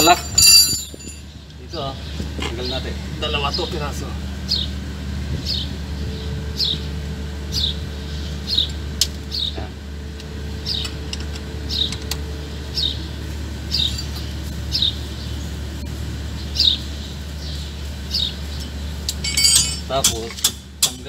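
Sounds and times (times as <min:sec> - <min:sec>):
steady low hum: 0:00.0 - 0:21.0
bird chirping: 0:05.4 - 0:06.9, 0:10.6 - 0:11.0, 0:11.6 - 0:15.6, 0:16.3 - 0:19.8.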